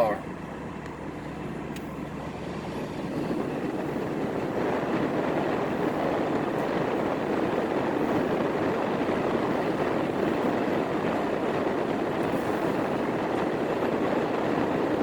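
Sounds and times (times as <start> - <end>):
tyres hissing on wet road: 2.7 - 15.0.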